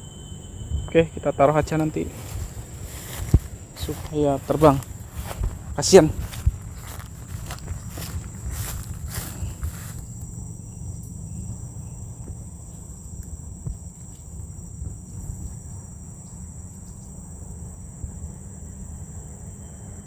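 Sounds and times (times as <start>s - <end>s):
low rumble: 0.0s - 12.6s
insects chirring: 0.0s - 20.0s
rustling: 1.6s - 10.2s.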